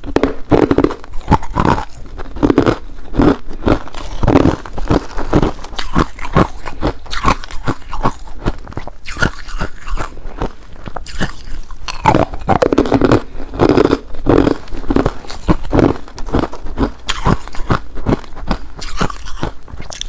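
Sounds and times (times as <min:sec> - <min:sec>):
ice being chewed: 0:00.0 - 0:20.0.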